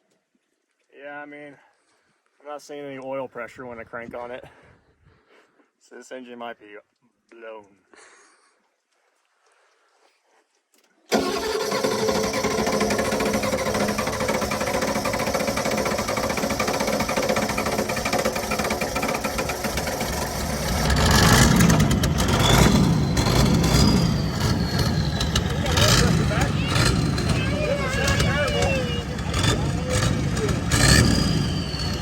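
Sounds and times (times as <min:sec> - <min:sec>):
diesel engine running: 0:11.1 - 0:32.0
faint engine whine: 0:11.1 - 0:32.0.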